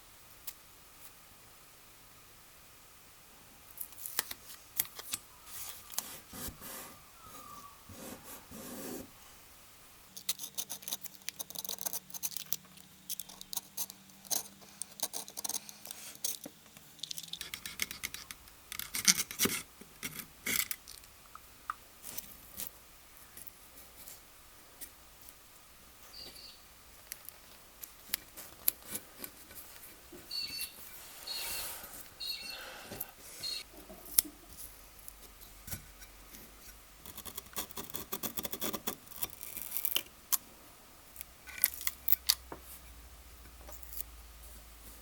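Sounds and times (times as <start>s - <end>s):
metal parts clicking and scraping: 10.2s - 21.1s.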